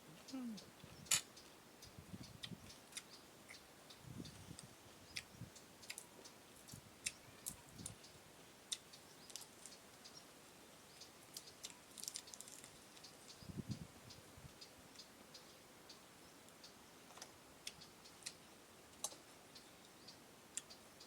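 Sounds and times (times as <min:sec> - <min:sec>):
chewing and mouth clicks: 0:11.3 - 0:13.1.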